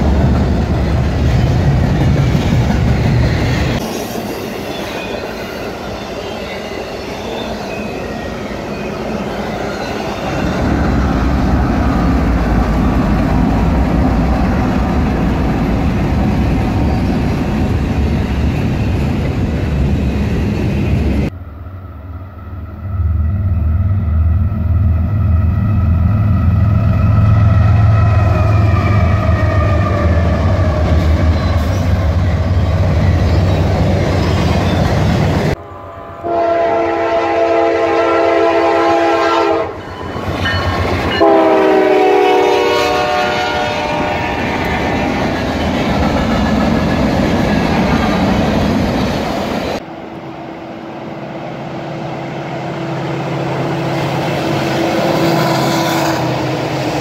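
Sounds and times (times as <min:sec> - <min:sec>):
passing locomotive hum: 0:00.0 - 0:57.0
distant train horn: 0:35.6 - 0:39.9, 0:41.2 - 0:45.0, 0:52.5 - 0:56.7
locomotive horn blasts: 0:36.2 - 0:39.8, 0:41.2 - 0:44.6.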